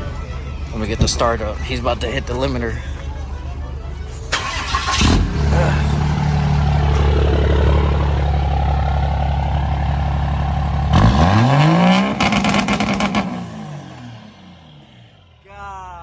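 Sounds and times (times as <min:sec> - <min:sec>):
diesel engine revving: 0:04.2 - 0:15.4
engine bouncing off rev limiter: 0:04.4 - 0:15.2.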